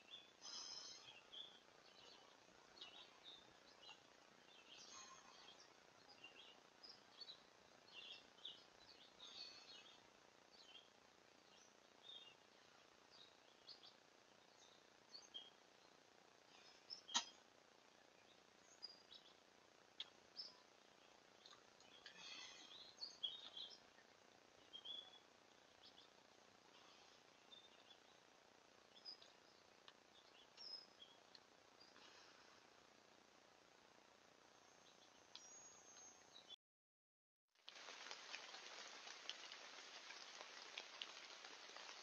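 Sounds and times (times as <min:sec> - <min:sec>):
bird chirps and tweets: 0:00.0 - 0:12.5, 0:13.1 - 0:16.0, 0:16.6 - 0:17.4, 0:18.1 - 0:19.4, 0:20.0 - 0:32.0, 0:34.6 - 0:36.6
low hiss: 0:00.0 - 0:36.5, 0:37.6 - 0:42.0.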